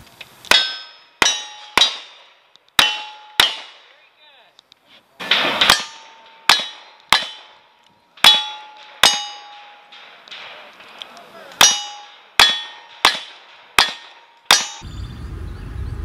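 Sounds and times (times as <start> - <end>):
steel target ringing: 0.5 - 2.2, 2.8 - 3.8, 5.2 - 10.7, 11.6 - 16.0.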